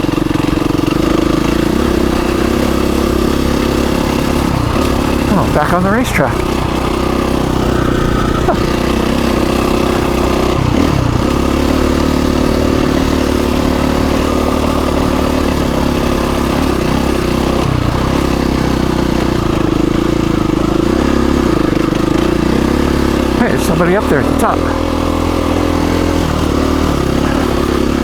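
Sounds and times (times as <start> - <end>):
dirt bike engine running: 0.0 - 28.0.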